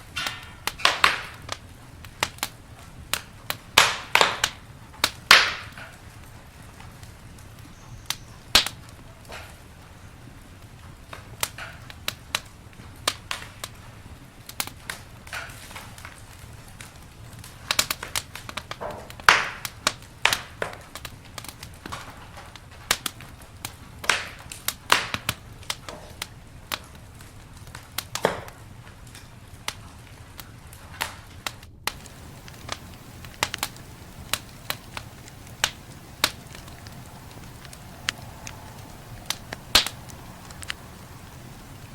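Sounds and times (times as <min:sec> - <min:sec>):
campfire crackling and popping: 0:00.0 - 0:41.9
low background rumble: 0:31.9 - 0:41.9.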